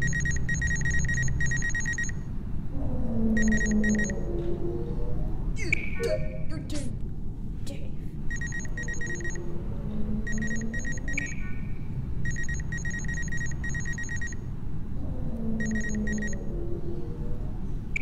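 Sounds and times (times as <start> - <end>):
electronic scanner beeping: 0.0 - 2.2, 3.4 - 4.1, 8.3 - 9.4, 10.3 - 11.5, 12.2 - 14.4, 15.6 - 16.4
low hum rising and falling: 8.3 - 18.0.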